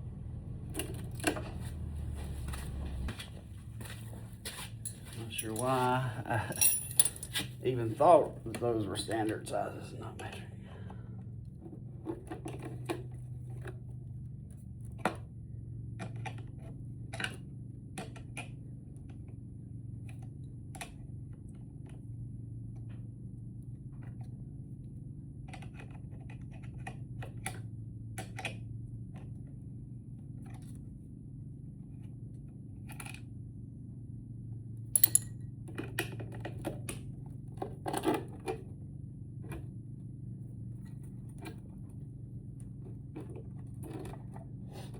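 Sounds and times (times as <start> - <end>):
steady low hum: 0.0 - 35.8
hand tools clicking and knocking: 4.8 - 9.6, 35.0 - 35.3.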